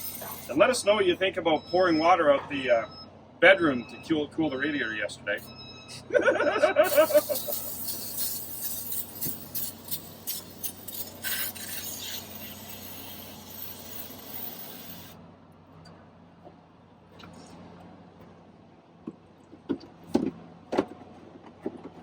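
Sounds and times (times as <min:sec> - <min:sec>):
hiss: 0:06.9 - 0:15.2.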